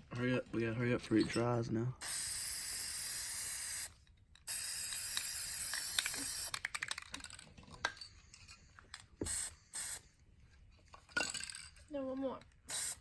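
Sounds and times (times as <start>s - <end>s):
spray paint can hissing: 2.0s - 6.7s, 9.2s - 10.0s, 12.7s - 13.0s.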